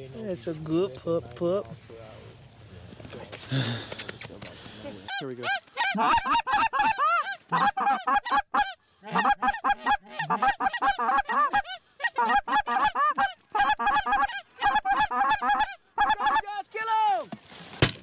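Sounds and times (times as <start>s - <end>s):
goose clucking and honking: 5.0s - 16.5s.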